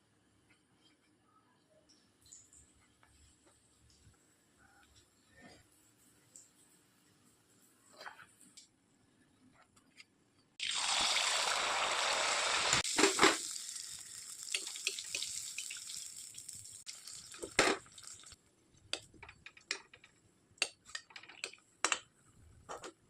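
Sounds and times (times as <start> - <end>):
loud steady hiss: 10.8 - 13.4.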